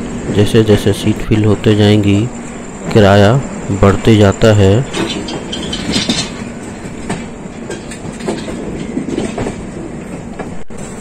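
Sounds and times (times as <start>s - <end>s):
train rumbling: 0.0s - 11.0s
wheels clacking over rail joints: 3.4s - 11.0s.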